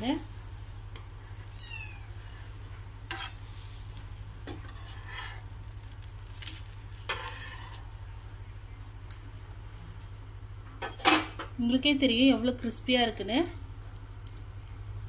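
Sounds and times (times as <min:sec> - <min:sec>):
dosa sizzling on a pan: 0:00.0 - 0:15.0
metal spatula scraping a pan: 0:02.2 - 0:06.0, 0:06.9 - 0:07.9.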